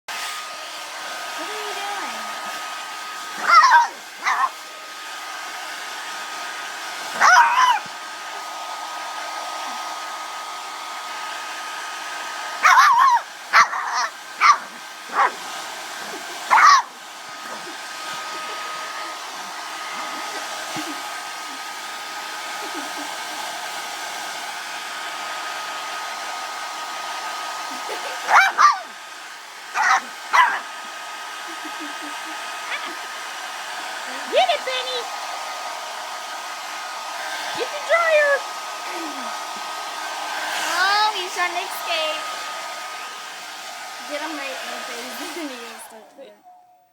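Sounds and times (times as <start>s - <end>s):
hair dryer whining: 0.1s - 46.9s
dog barking: 3.4s - 4.6s, 7.2s - 7.8s, 12.6s - 15.4s, 16.5s - 17.0s, 28.2s - 28.9s, 29.7s - 30.7s.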